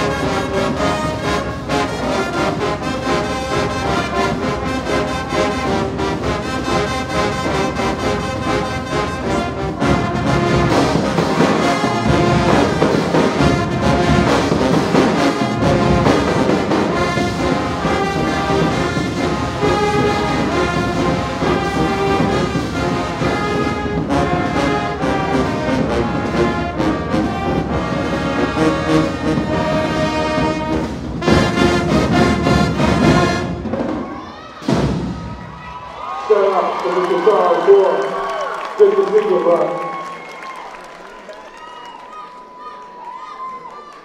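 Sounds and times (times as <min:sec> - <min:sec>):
brass section playing chords: 0:00.0 - 0:33.9
drums: 0:00.0 - 0:36.1.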